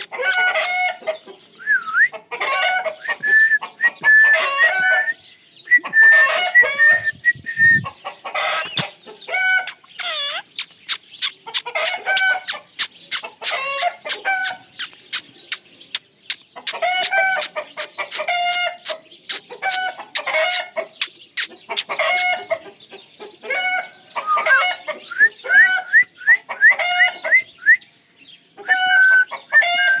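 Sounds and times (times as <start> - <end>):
parrot squawking: 0.0 - 1.0, 8.4 - 15.4.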